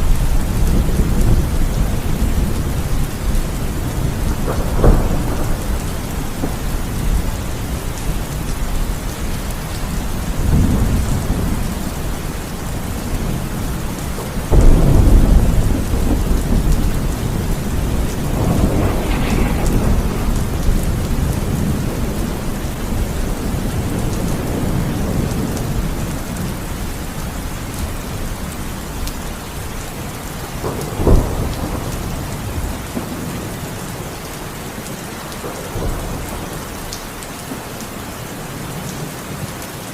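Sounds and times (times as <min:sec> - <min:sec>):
rolling thunder: 0:00.0 - 0:34.1
heavy rain: 0:00.0 - 0:39.9
sharp thunderclap: 0:00.1 - 0:08.8, 0:14.2 - 0:26.0, 0:30.6 - 0:33.5.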